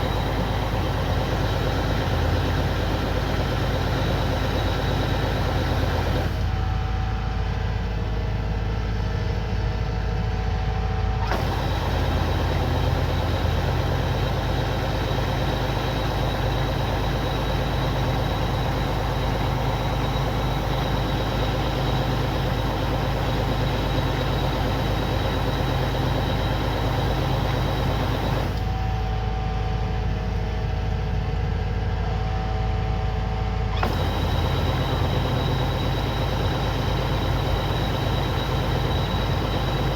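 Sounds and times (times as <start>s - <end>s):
steady hum: 0.0s - 6.5s, 11.3s - 28.7s, 33.8s - 39.9s
diesel engine running under load: 0.0s - 39.9s.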